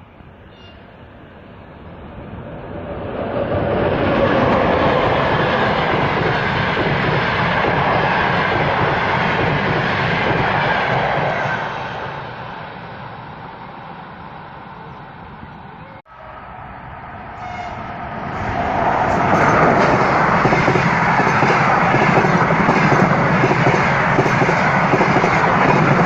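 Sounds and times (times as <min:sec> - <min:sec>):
passenger train passing on rails: 0:00.0 - 0:26.0.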